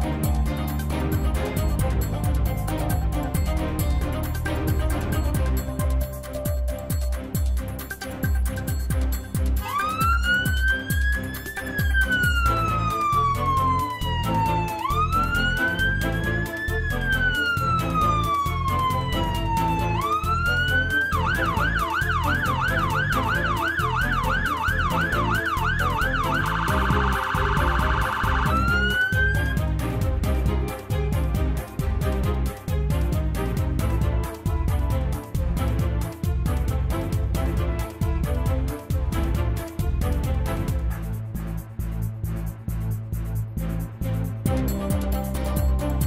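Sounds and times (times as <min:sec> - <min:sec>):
background music with steady beat: 0:00.0 - 0:46.0
electronic emergency siren: 0:09.6 - 0:29.6.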